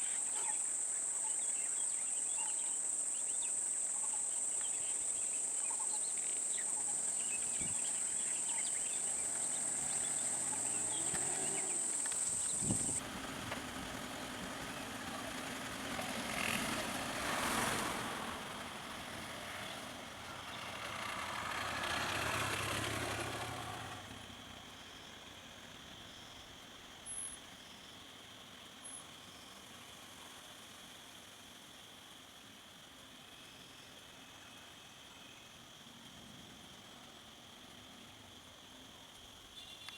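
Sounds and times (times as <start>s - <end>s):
high-pitched insect drone: 2.8s - 13.0s
low engine hum: 7.4s - 24.5s
road vehicles passing: 7.9s - 24.8s.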